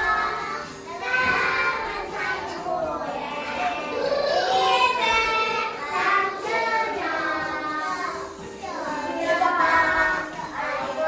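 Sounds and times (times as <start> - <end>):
children singing: 0.0 - 11.0.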